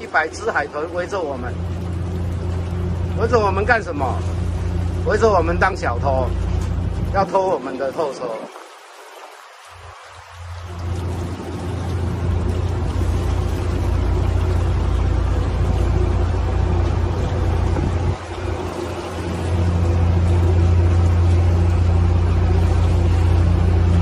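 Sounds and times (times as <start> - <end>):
boat engine humming: 0.0 - 24.0
wind and water rushing: 0.0 - 24.0.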